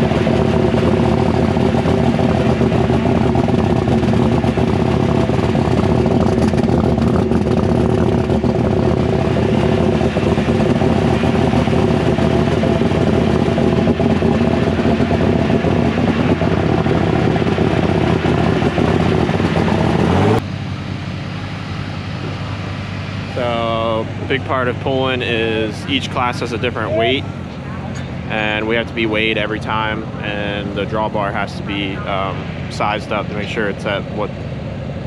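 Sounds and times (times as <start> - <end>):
tractor engine running loudly: 0.0 - 35.0.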